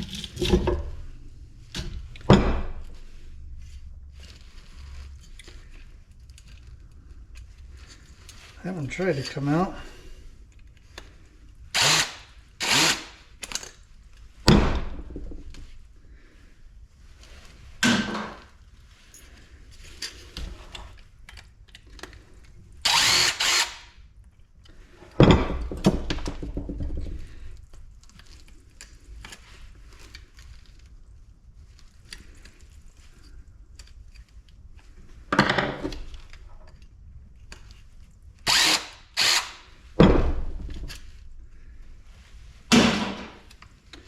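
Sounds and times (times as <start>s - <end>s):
power drill driving screws: 11.8s - 13.3s, 22.8s - 24.0s, 38.5s - 39.7s.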